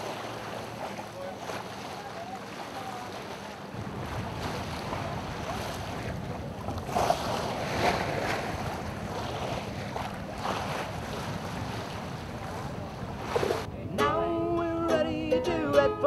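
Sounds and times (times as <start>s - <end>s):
water rushing along ship hull: 0.0s - 16.0s
wind rumbling on microphone: 3.1s - 14.6s.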